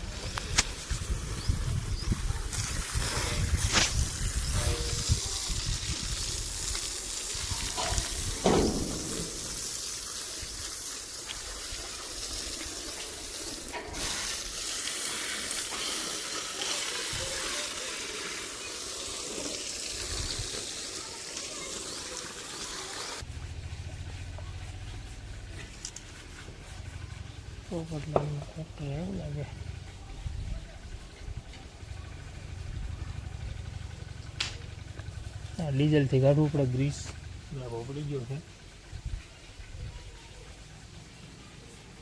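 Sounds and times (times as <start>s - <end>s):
spray jet hissing: 0.2s - 23.2s.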